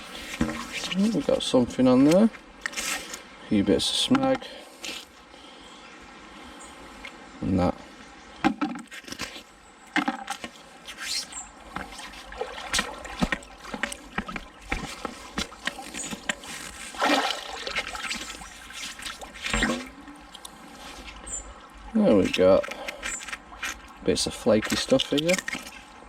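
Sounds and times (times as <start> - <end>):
river water splashing and trickling: 0.0 - 26.0.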